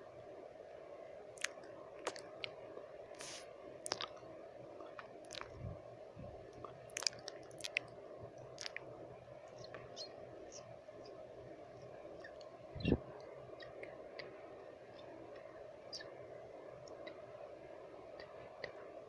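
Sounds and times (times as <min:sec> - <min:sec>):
low white noise hiss: 0:00.0 - 0:19.0
lip smacks and tongue clicks: 0:01.4 - 0:02.6, 0:03.2 - 0:04.2, 0:04.8 - 0:05.6, 0:06.6 - 0:08.9
breathy puff: 0:03.2 - 0:03.5.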